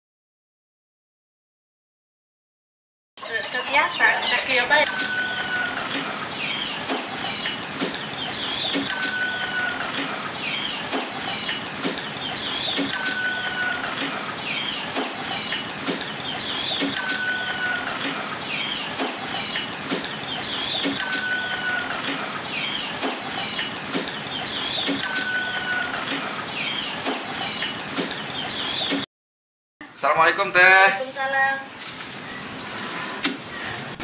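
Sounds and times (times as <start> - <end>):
bird whistle and chirps: 8.2 - 11.6, 16.2 - 29.0.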